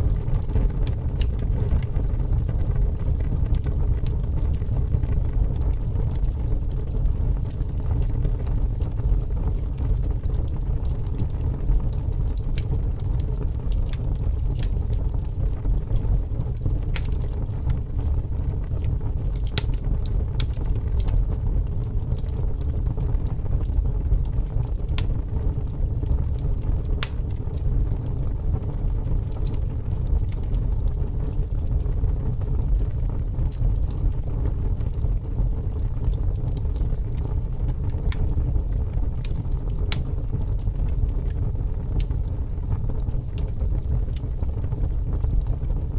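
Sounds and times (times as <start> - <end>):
fire crackling: 0.0 - 45.9.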